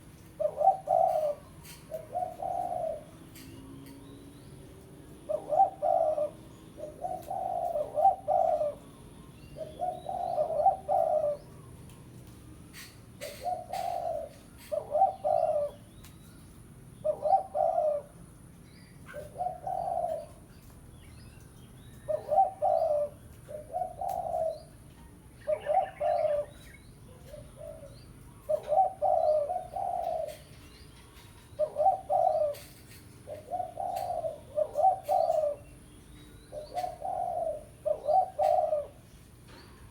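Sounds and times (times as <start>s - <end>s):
dove cooing: 0.0s - 3.7s, 4.7s - 16.0s, 17.0s - 18.2s, 19.0s - 20.7s, 21.9s - 39.9s.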